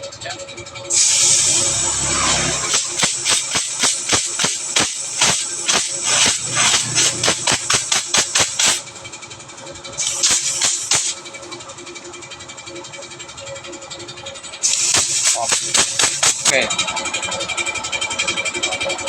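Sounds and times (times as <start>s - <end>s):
gas hissing through pipe: 0.9s - 9.2s, 10.0s - 11.6s, 14.6s - 16.6s
spitting crackling clicks: 2.7s - 8.8s, 10.0s - 11.2s, 14.6s - 16.5s.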